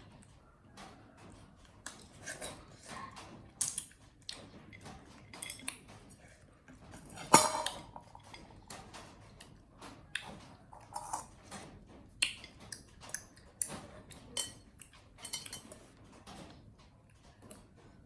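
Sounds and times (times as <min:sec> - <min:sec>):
light clicks and clinks: 0:12.3 - 0:16.5.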